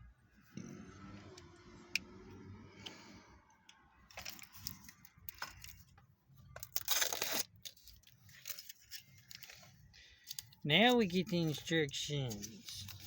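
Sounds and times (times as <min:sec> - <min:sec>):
packaging tearing and crinkling: 0:06.6 - 0:09.7.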